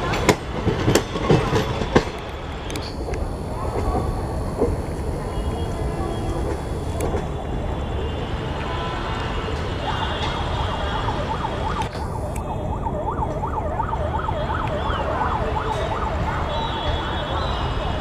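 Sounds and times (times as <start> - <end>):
train rumbling pulling away: 0.0 - 13.4
wailing siren: 9.5 - 18.0.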